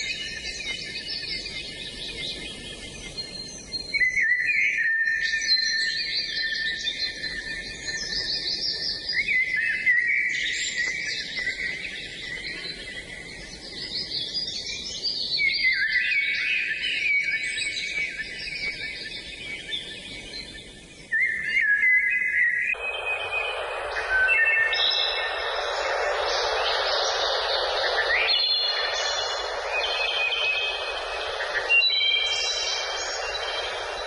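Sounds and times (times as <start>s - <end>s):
songbirds chorus: 0.0s - 34.0s
steady hiss: 22.8s - 34.0s.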